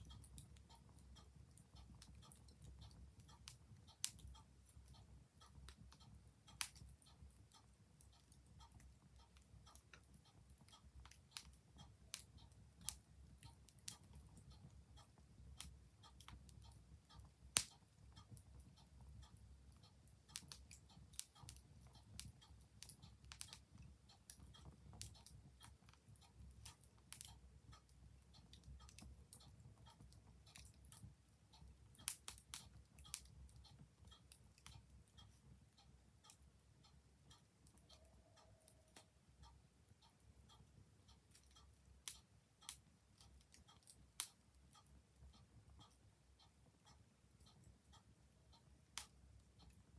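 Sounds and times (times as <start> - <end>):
wood fire crackling and popping: 6.6 - 6.9, 20.3 - 27.5.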